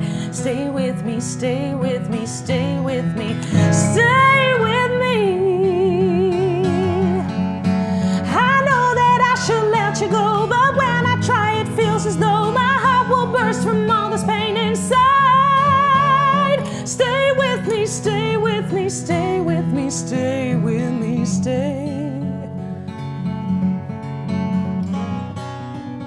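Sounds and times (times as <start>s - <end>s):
woman singing with vibrato: 0.0s - 22.6s
acoustic guitar chords: 0.0s - 26.0s.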